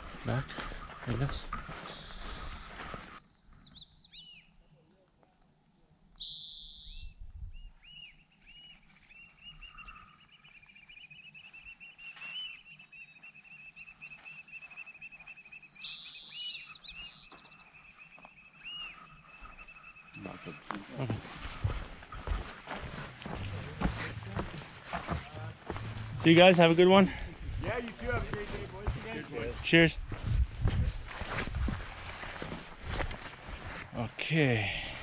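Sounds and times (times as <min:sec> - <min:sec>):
small birds whistling: 0:06.2 - 0:07.2, 0:07.8 - 0:20.6.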